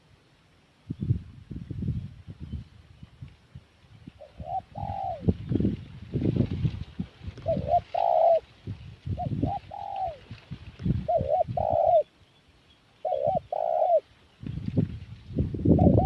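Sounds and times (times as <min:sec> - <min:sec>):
dove cooing: 0:04.2 - 0:05.4, 0:07.3 - 0:08.5, 0:09.1 - 0:12.1, 0:13.0 - 0:14.1.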